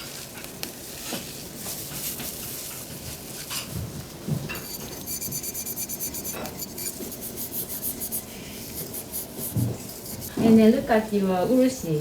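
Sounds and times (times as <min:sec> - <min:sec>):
sandpaper rubbing on ceramic: 0:04.6 - 0:10.4.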